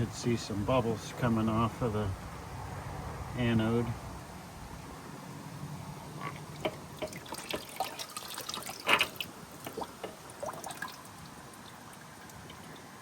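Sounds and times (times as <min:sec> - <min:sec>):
water dripping and splashing: 0:06.2 - 0:13.0.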